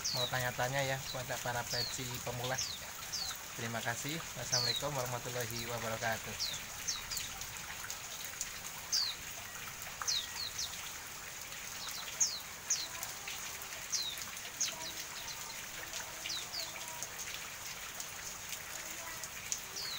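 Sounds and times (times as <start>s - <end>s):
bird chirping: 0.0s - 7.4s, 8.8s - 11.0s
rain hissing: 0.0s - 19.9s.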